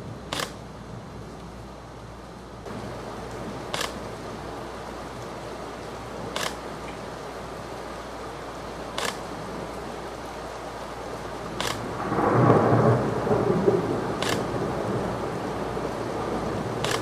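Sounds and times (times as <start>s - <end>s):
steady rain: 0.0s - 17.0s
short sharp clicks: 0.3s - 0.6s, 11.6s - 11.8s, 14.2s - 14.5s
thunder rumbling: 11.3s - 17.0s.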